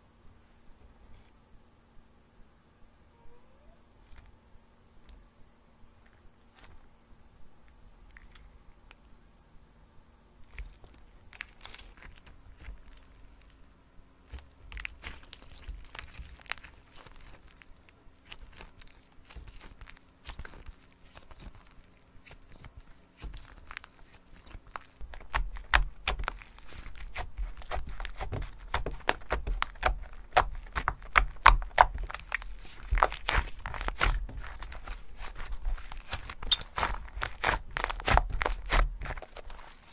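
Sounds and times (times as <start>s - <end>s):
slime crackling and popping: 10.4s - 13.6s, 14.2s - 39.9s.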